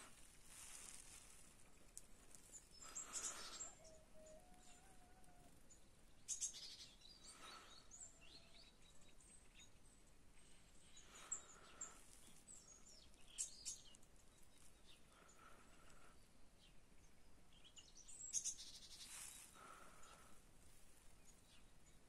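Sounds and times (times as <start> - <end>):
background hiss: 0.0 - 4.2, 10.0 - 22.0
faint bird chirps: 0.7 - 20.4.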